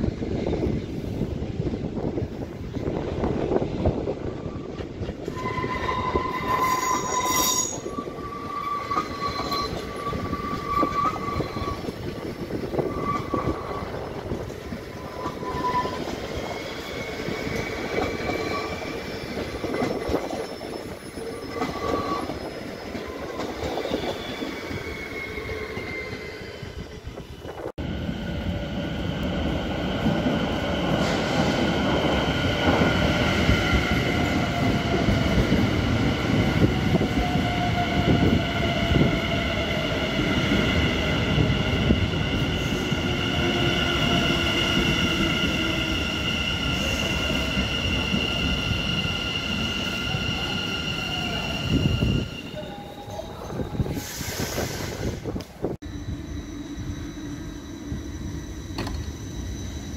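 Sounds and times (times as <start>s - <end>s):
electric train whine: 0.0s - 59.9s
train wheels squealing: 4.0s - 27.7s, 29.2s - 59.9s.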